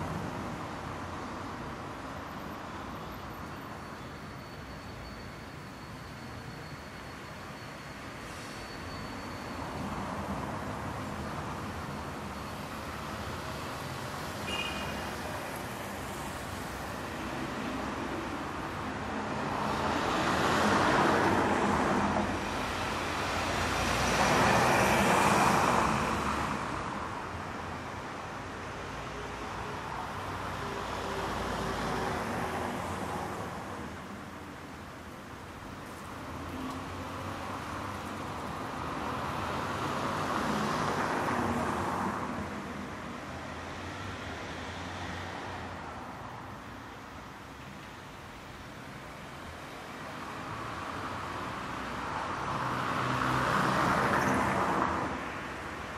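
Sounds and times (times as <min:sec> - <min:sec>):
traffic hum: 0:00.0 - 0:55.9
vehicles passing close by: 0:00.0 - 0:55.9
car passing by: 0:18.9 - 0:27.1, 0:50.2 - 0:55.9.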